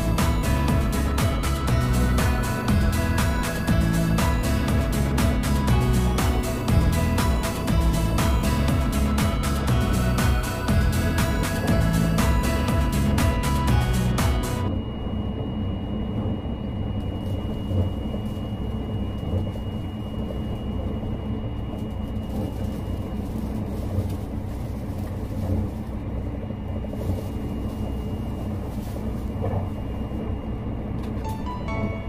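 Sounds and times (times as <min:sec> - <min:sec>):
train wheels rumbling on rail: 0:00.0 - 0:14.7
faint high steady tone: 0:00.0 - 0:23.5, 0:27.0 - 0:32.0.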